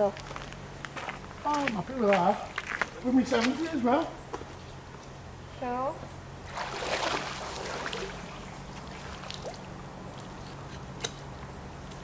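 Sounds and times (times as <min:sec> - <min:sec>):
water splashing and trickling: 0:06.4 - 0:10.4.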